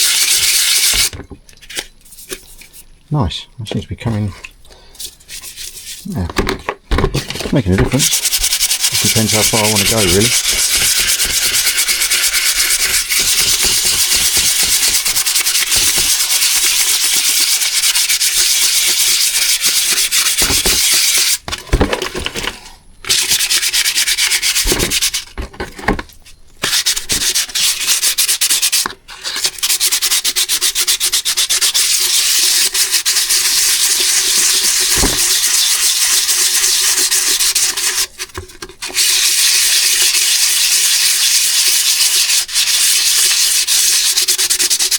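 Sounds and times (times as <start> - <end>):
abrasive paper scrubbing metal: 7.3 - 21.4, 29.4 - 44.9.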